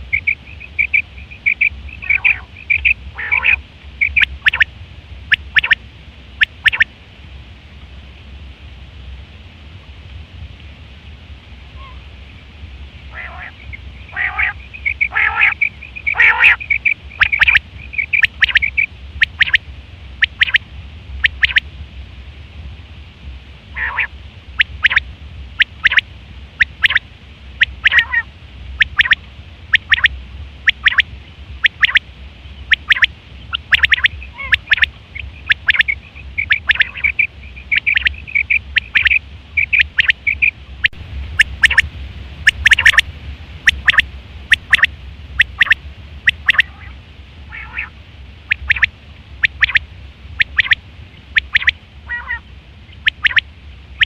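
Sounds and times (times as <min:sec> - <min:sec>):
quail calling: 0:00.0 - 0:04.7, 0:05.3 - 0:05.8, 0:06.4 - 0:06.9, 0:11.8 - 0:12.1, 0:13.1 - 0:19.6, 0:20.2 - 0:20.6, 0:21.2 - 0:21.6, 0:23.7 - 0:25.0, 0:25.6 - 0:26.0, 0:26.6 - 0:27.0, 0:27.6 - 0:32.0, 0:32.6 - 0:54.0
steady low hum: 0:00.0 - 0:54.0.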